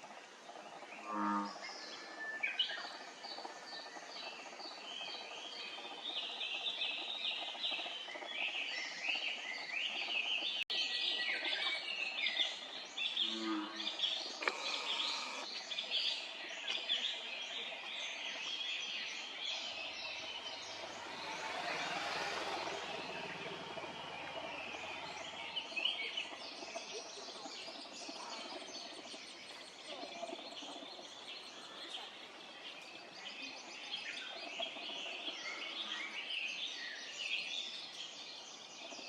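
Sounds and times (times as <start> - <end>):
young birds begging peeps: 14.4 - 15.5.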